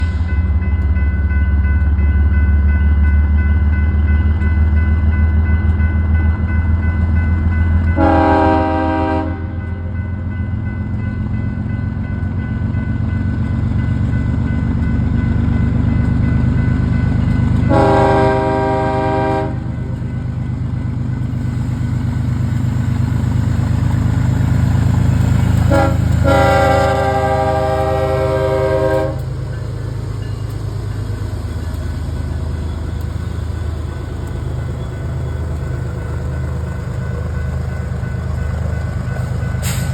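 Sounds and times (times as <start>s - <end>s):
diesel locomotive rumbling: 0.0s - 39.9s
train air horn blasts: 8.0s - 9.6s, 17.7s - 19.8s, 25.6s - 29.3s.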